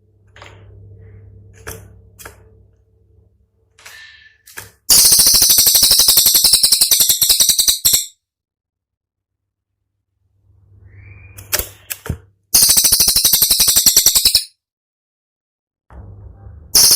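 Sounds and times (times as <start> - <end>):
songbird rattling trill: 4.9 - 8.2, 12.6 - 14.5.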